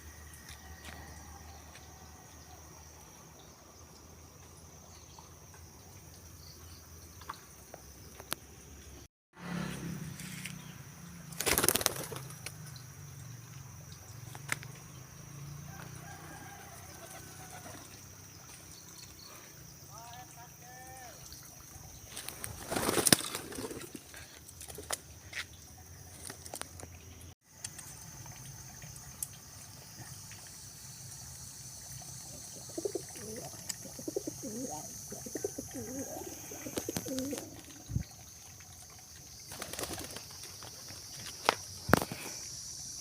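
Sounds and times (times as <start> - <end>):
wings flapping: 11.3 - 12.6, 22.2 - 25.0, 39.5 - 42.2
pigeons cooing: 32.3 - 37.9.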